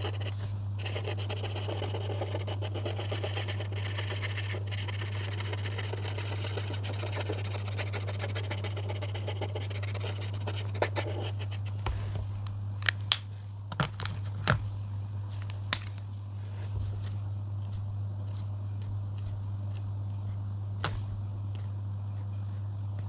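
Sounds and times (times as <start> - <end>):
pen scratching on paper: 0.0 - 11.8.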